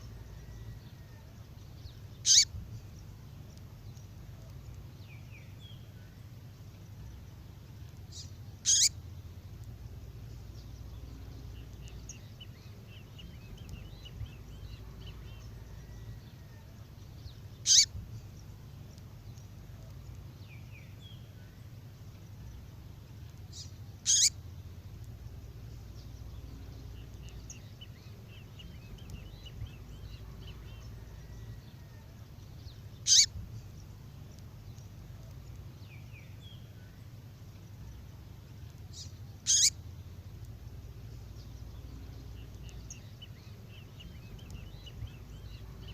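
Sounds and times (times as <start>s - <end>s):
faint bird twittering: 0.0s - 45.9s
steady low hum: 0.0s - 45.9s
sharp downward-sweeping bird call: 2.2s - 2.5s, 8.7s - 8.9s, 17.6s - 17.9s, 24.1s - 24.4s, 33.0s - 33.3s, 39.4s - 39.8s.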